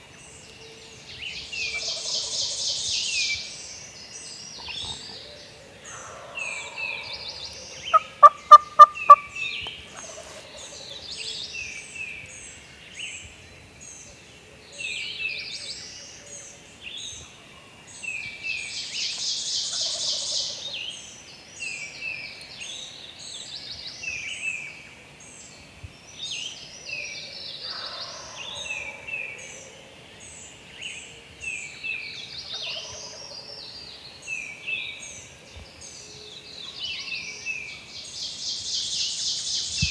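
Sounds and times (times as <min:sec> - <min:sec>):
songbirds singing: 0:00.0 - 0:39.9
loud sharp calls close by: 0:07.8 - 0:10.7
distant turkeys gobbling: 0:07.9 - 0:09.4.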